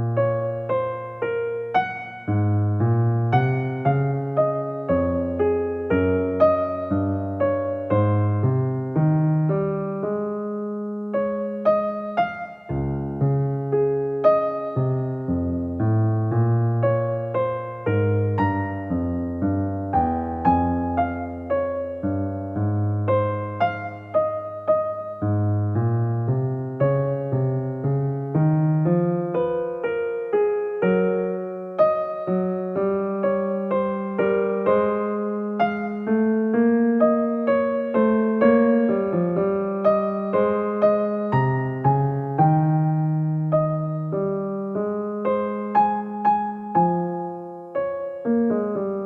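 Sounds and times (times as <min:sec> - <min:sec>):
soft electric piano music: 0:00.0 - 0:49.0.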